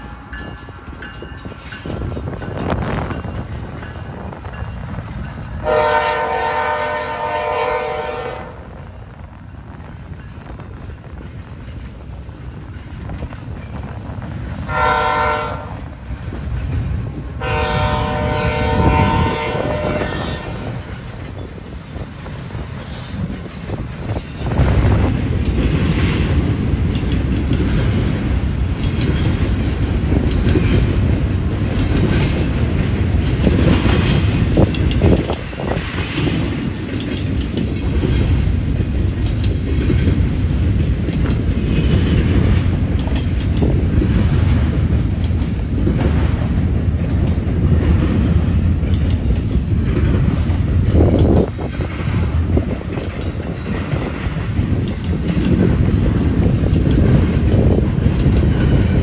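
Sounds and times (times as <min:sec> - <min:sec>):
train cars rumbling past: 0:00.0 - 0:59.0
wheels clicking over rail joints: 0:18.9 - 0:59.0.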